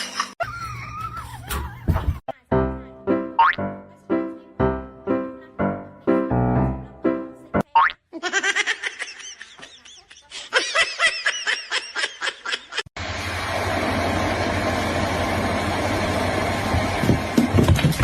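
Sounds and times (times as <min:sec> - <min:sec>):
high-pitched laughter: 0:00.0 - 0:02.2, 0:08.1 - 0:12.9.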